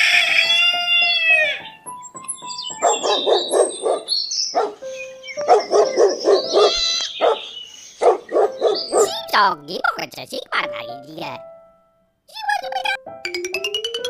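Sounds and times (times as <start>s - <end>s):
dog barking: 2.8s - 4.8s, 5.4s - 9.2s.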